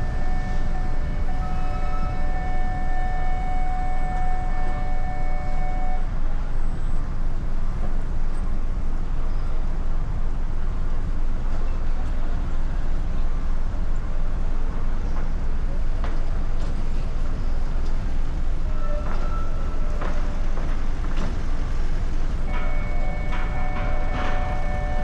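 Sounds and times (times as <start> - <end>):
held horn tone: 0.0 - 6.1, 22.5 - 25.0
low engine rumble: 0.0 - 25.0.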